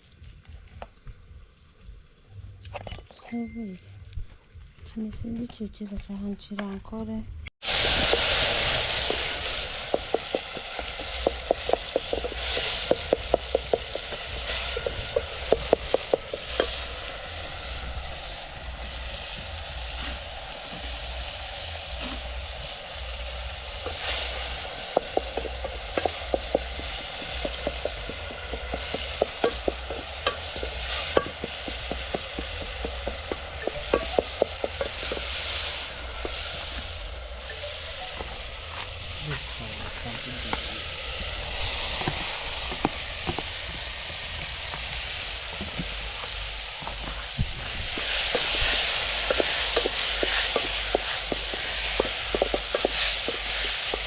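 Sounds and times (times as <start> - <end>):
food sizzling in a pot: 7.6 - 54.0
spoon tapping against pot: 27.2 - 35.2.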